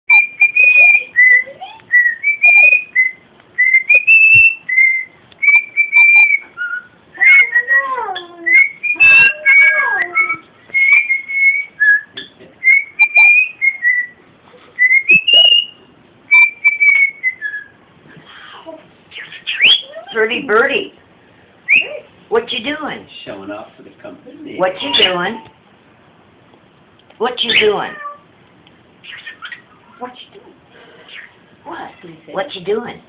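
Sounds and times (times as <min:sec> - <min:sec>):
cockatiel whistling: 0:00.1 - 0:07.8, 0:08.4 - 0:14.2, 0:14.8 - 0:17.8, 0:19.1 - 0:20.1, 0:21.7 - 0:22.0, 0:24.8 - 0:25.2, 0:29.0 - 0:30.0.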